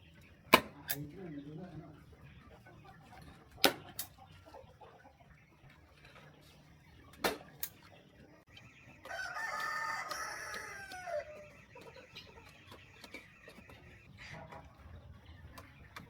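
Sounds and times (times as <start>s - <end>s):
rooster crowing: 9.0s - 11.5s.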